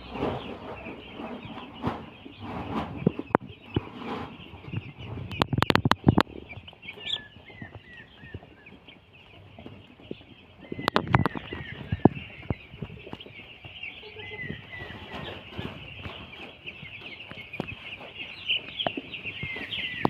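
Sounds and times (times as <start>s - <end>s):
sharp knocks or clatters: 0.0s - 7.1s
chicks peeping: 0.0s - 20.0s.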